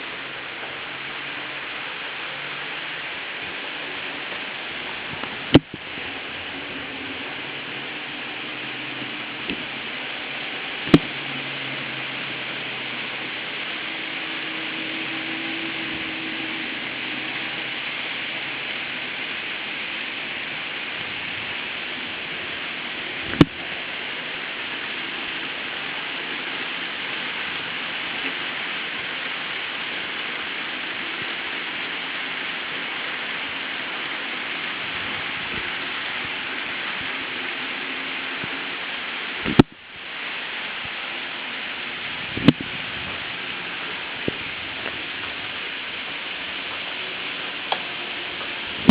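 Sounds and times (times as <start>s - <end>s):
model train wheels whirring: 0.0s - 39.7s.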